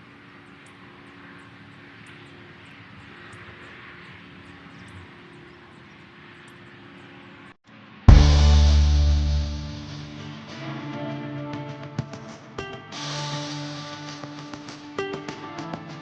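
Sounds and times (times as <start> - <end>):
low hum: 8.0 - 10.6.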